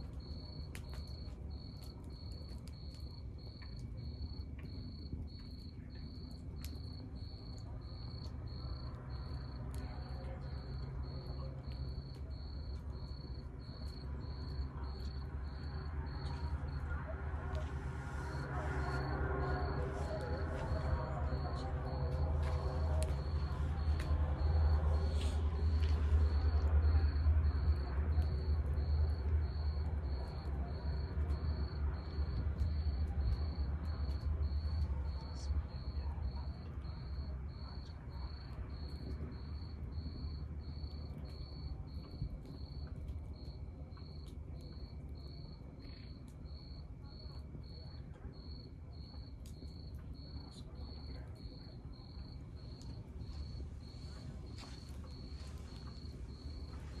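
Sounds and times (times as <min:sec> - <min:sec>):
log fire crackling and popping: 0:00.0 - 0:57.0
cricket chirping: 0:00.2 - 0:57.0
low rumble: 0:14.5 - 0:29.4.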